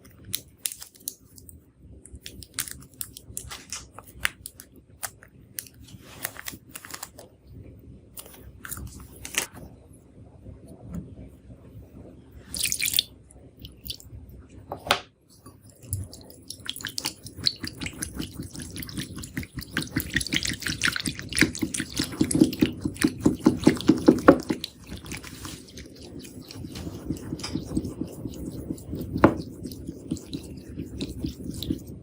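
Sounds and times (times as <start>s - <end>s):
slime clicking and squelching: 0.2s - 7.2s, 13.6s - 14.0s, 15.5s - 32.0s.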